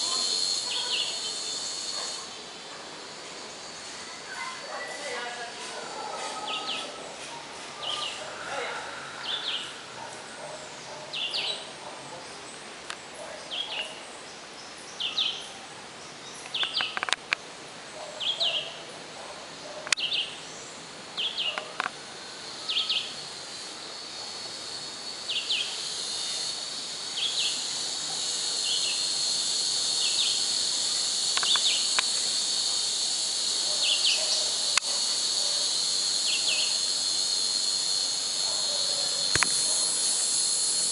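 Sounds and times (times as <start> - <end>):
high insect drone: 0.0 - 40.9
sharp clicks: 31.3 - 32.1, 39.3 - 39.7.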